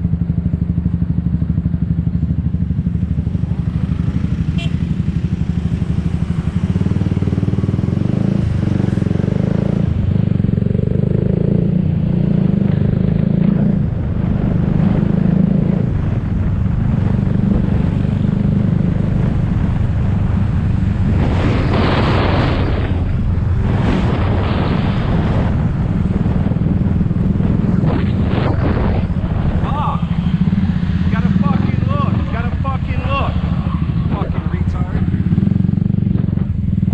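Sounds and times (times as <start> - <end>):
small motorbike engine running: 1.8 - 9.7
rush of noise: 2.4 - 36.9.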